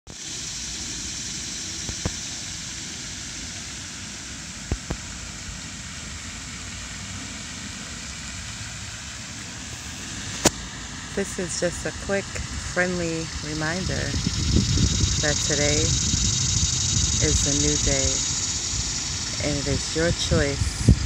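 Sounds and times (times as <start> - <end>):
steady rushing noise: 0.1 - 21.0.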